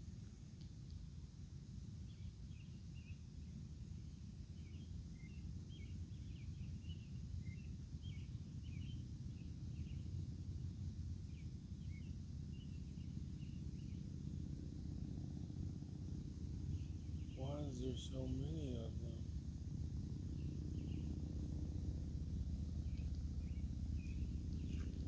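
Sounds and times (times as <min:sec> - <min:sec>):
small birds chirping: 0:04.2 - 0:10.4, 0:11.2 - 0:14.1, 0:16.5 - 0:25.0
steady low rumble: 0:09.8 - 0:25.0.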